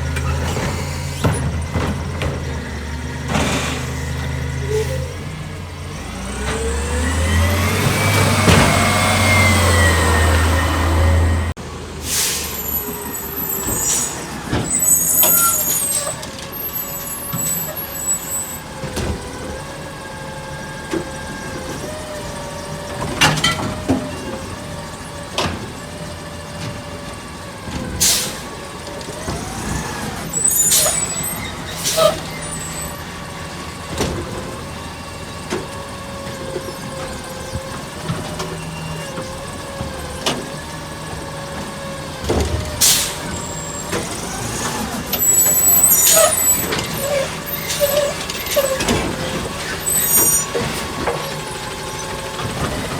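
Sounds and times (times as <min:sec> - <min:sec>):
garbage truck engine whine: 0:00.0 - 0:52.9
sharp air hisses: 0:12.0 - 0:12.8.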